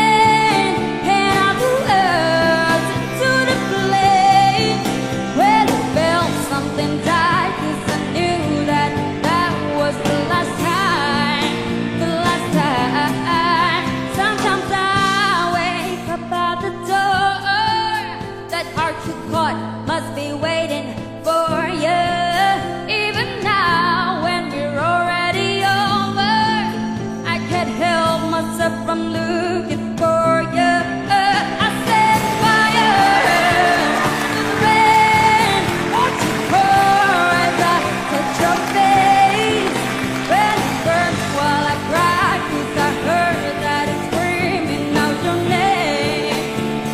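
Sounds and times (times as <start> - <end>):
person singing with vibrato: 0.0 - 46.9
pop band accompaniment: 0.0 - 46.9
sustained instrumental backing: 31.8 - 46.9.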